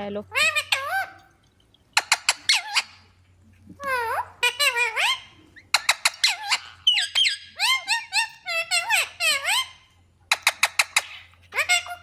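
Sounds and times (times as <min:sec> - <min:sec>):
parrots squeaky calls: 0:00.3 - 0:03.2, 0:03.8 - 0:12.0.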